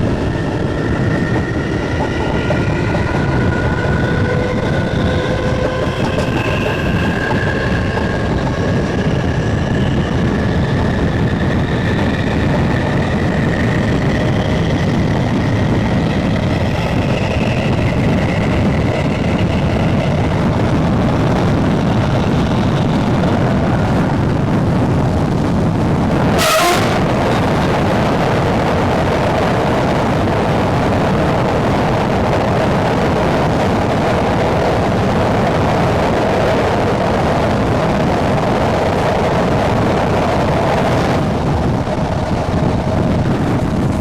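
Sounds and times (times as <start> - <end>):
traction motors whining: 0.0 - 30.3
train rumbling: 0.0 - 44.0.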